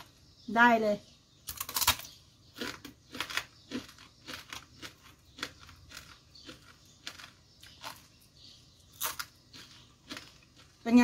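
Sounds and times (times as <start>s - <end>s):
crunching fried fish bones: 1.5s - 11.0s.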